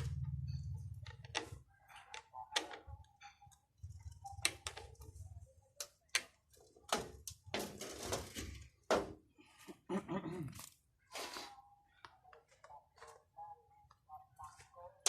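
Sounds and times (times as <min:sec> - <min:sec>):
metal and plastic parts clicking: 0:00.9 - 0:08.5.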